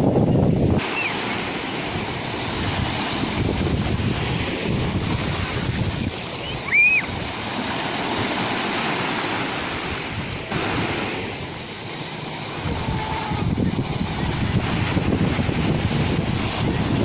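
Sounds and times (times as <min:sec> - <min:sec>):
sea waves washing in: 0:00.0 - 0:17.0.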